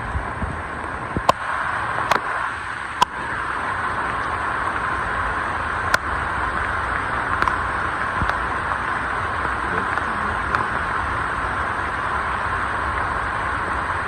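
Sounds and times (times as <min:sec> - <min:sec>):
steady rain hissing: 0:00.0 - 0:14.0.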